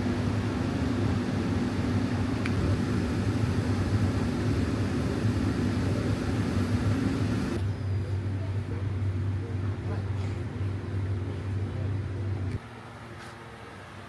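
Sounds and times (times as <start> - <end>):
vehicle engine humming: 0.0 - 7.6.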